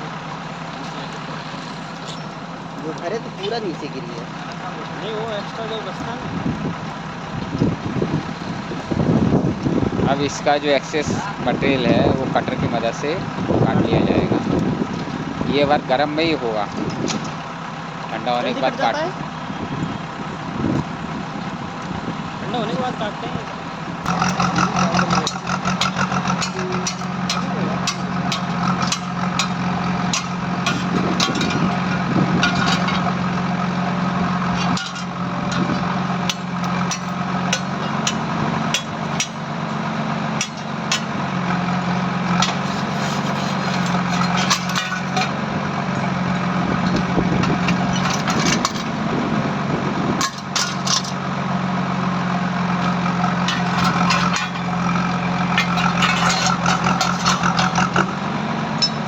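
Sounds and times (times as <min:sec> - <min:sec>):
engine running: 0:00.0 - 0:59.0
metallic clicks and knocks: 0:24.0 - 0:33.3, 0:34.6 - 0:39.5, 0:40.4 - 0:41.3, 0:42.3 - 0:45.4, 0:46.8 - 0:49.1, 0:50.2 - 0:51.2, 0:52.8 - 0:58.1.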